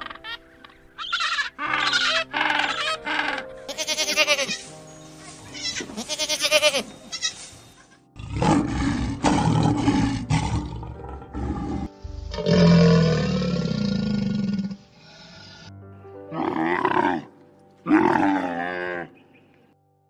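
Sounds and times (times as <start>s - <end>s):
goat bleating: 3.7s - 4.6s, 5.5s - 7.4s
lion roaring: 8.2s - 15.7s, 16.3s - 17.3s, 17.9s - 19.2s.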